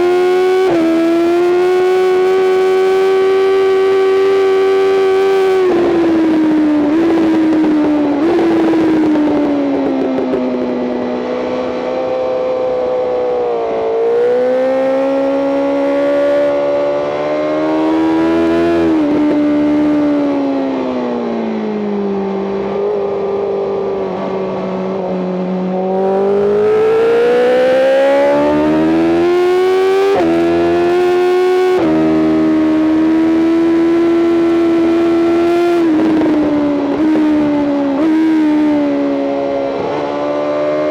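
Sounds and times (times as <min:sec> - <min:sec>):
motorcycle engine at race pace: 0:00.0 - 0:40.9.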